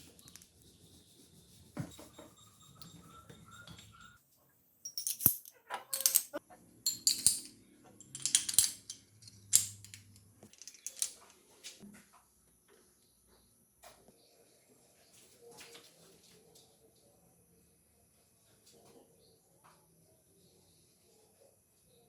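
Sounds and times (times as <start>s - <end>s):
small metal parts clinking: 4.8s - 11.4s.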